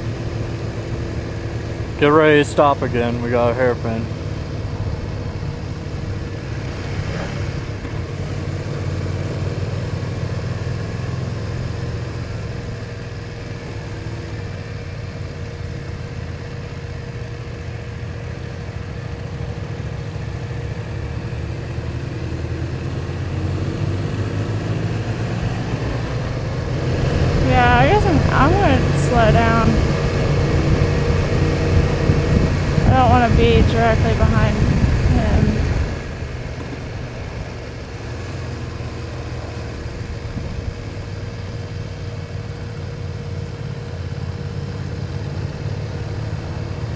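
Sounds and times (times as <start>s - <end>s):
motorcycle engine running: 0.0s - 46.9s
wind noise: 26.8s - 37.6s, 40.0s - 41.2s.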